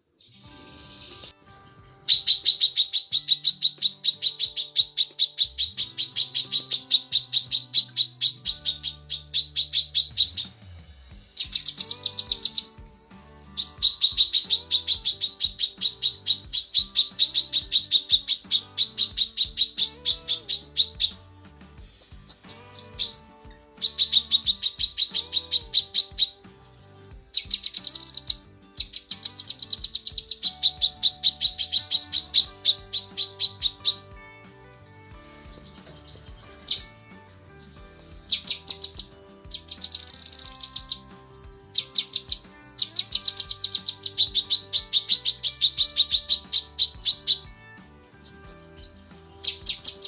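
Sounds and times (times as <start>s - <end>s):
bird calling rapid high notes: 0.2s - 50.0s.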